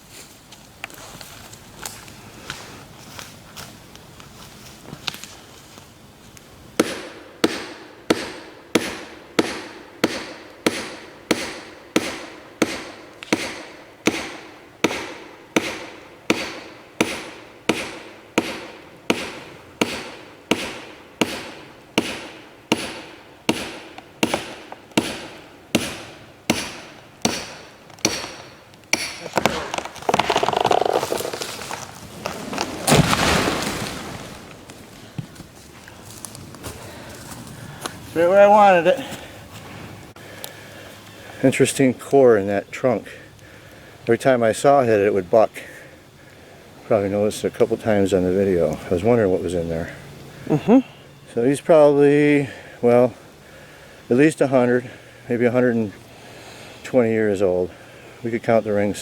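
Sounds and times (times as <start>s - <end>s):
tree crashing to the ground: 29.2s - 37.4s
tree trunk cracking and creaking: 29.2s - 38.0s.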